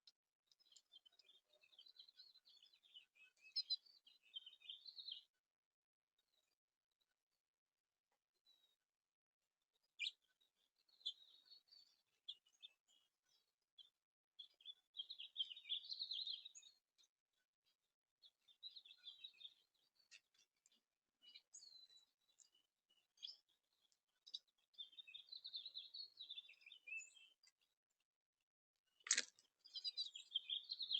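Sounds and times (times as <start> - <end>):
songbirds chirping faintly: 0.0 - 30.9
sharp click: 29.1 - 29.4.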